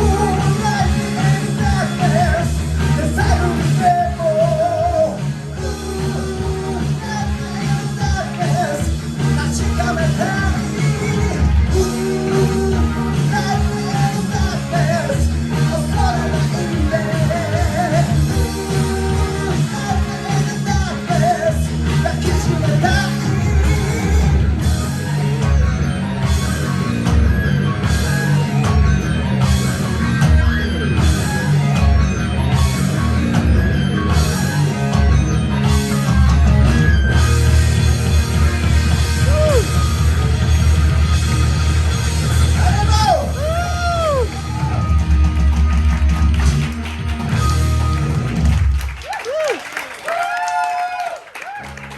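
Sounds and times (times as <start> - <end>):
person singing: 0.0 - 25.7
hard rock band playing: 0.0 - 49.4, 51.5 - 51.9.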